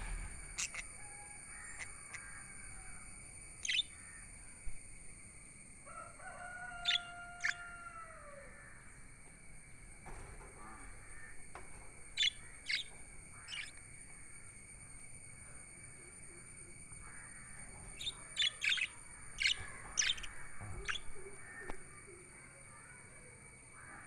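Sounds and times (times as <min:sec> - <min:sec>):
faint high whine: 0:00.0 - 0:24.0
budgerigars chirping: 0:00.6 - 0:00.8, 0:03.6 - 0:03.9, 0:06.8 - 0:07.6, 0:12.2 - 0:13.7, 0:18.0 - 0:21.1.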